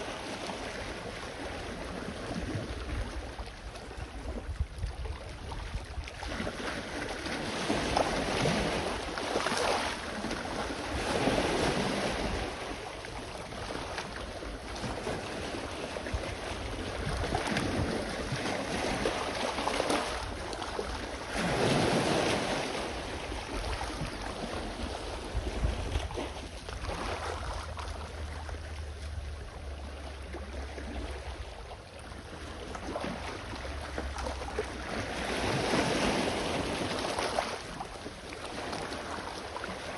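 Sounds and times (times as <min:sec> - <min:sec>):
wind rumble on microphone: 0:00.0 - 0:39.9
sea waves washing onto shore: 0:32.3 - 0:39.9.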